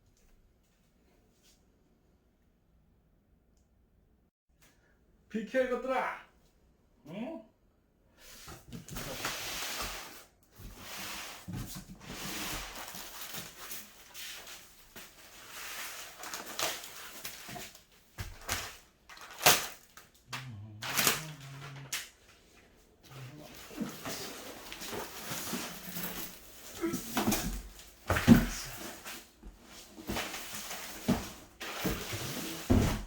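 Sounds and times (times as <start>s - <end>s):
packaging rustling and scraping: 8.8s - 20.2s, 23.1s - 33.0s.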